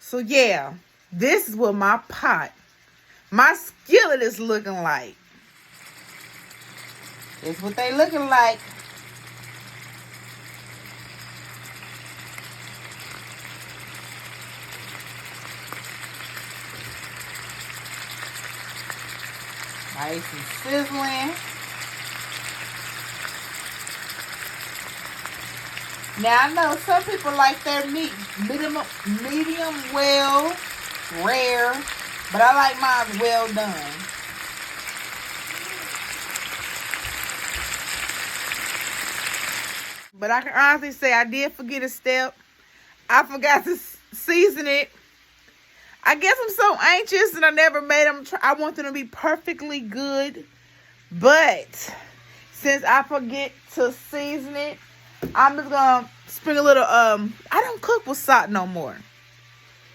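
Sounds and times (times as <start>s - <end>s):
meat sizzling in a skillet: 5.3s - 40.2s.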